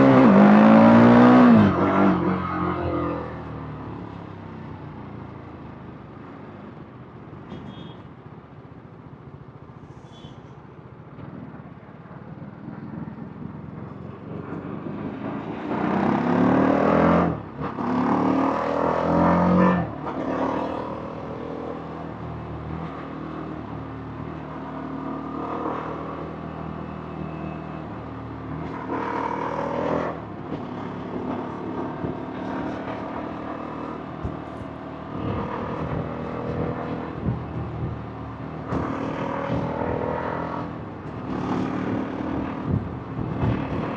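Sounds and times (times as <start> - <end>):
road noise: 0.0 - 43.9
motorcycle engine revving: 28.6 - 43.9
wind noise: 35.1 - 38.1, 40.8 - 43.9.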